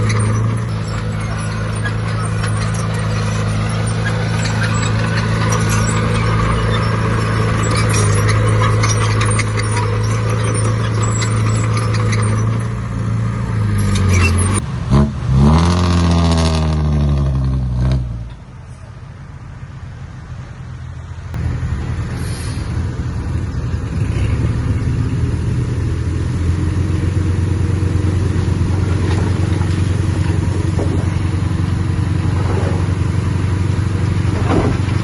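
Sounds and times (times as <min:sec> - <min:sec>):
metallic clatter: 0:00.0 - 0:14.6
heavy diesel engine revving: 0:00.0 - 0:18.3, 0:21.3 - 0:35.0.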